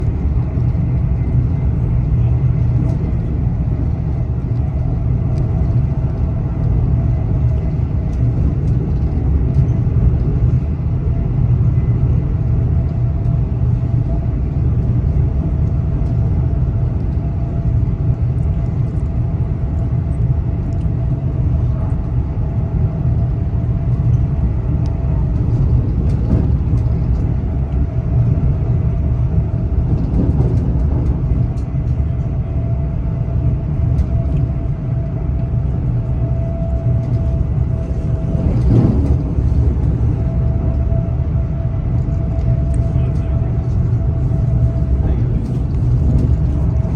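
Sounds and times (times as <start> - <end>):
train rumbling: 0.0 - 46.9.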